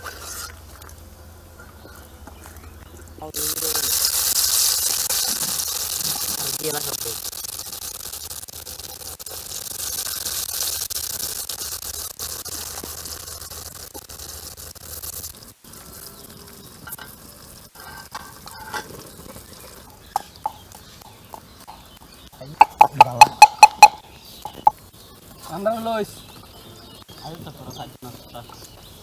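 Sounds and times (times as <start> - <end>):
potatoes sizzling in oil: 3.3 - 22.3
pestle pounding in mortar: 22.6 - 23.9.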